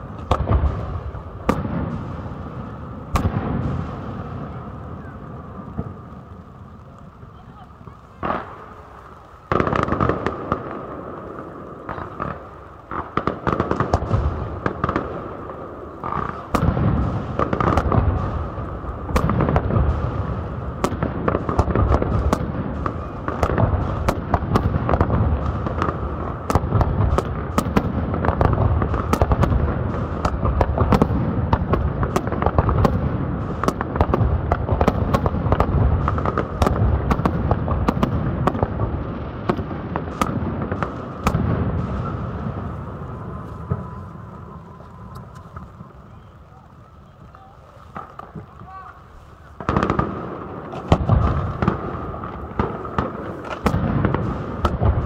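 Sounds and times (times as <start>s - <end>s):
low rumble of booms: 0.0s - 8.8s
fireworks bangs and cracks: 0.0s - 55.0s.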